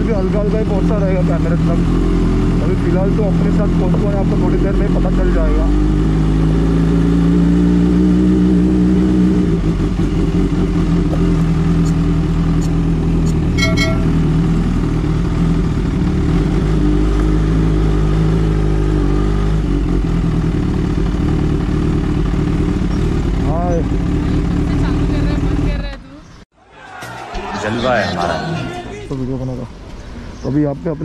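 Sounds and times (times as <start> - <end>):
motorcycle engine running: 0.0 - 26.4
short beeps: 13.5 - 14.4.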